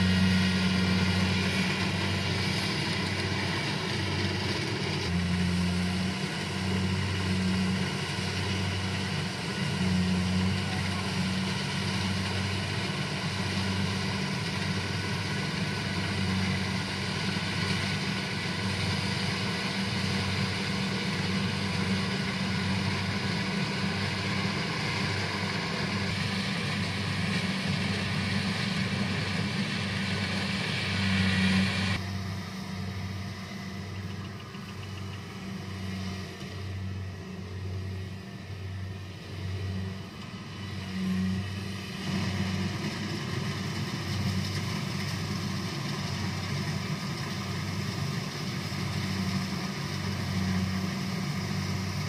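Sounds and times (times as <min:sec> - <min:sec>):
combine harvester running: 0:00.0 - 0:52.0.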